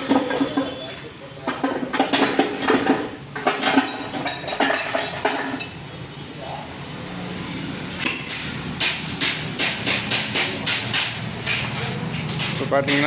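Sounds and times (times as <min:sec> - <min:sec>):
hammer tapping metal: 0:08.1 - 0:13.0.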